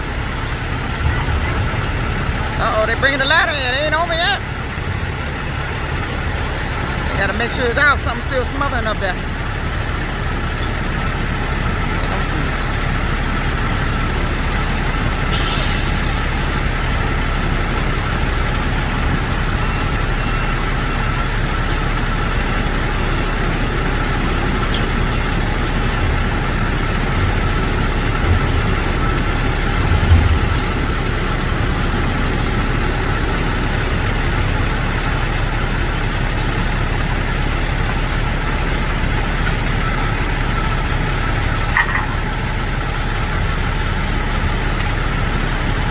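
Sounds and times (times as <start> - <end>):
diesel truck engine idling: 0.0 - 45.9
air hiss: 15.3 - 16.3
low thumps: 25.8 - 34.6.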